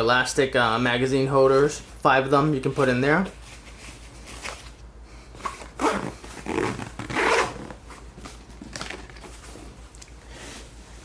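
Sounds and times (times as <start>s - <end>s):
zipper rasping open: 5.4s - 7.8s.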